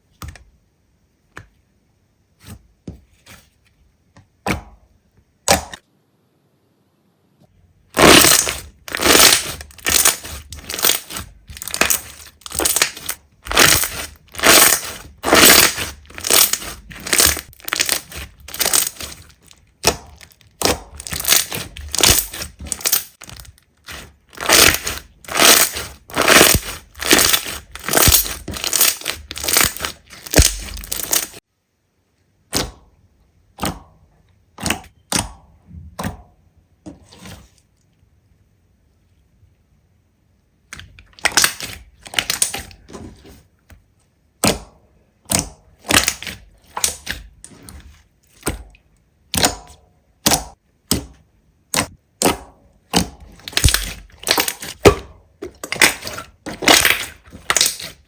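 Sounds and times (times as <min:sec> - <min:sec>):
slime crackling when squeezed: 0:08.0 - 0:31.4, 0:53.4 - 0:54.9, 0:55.6 - 0:58.0.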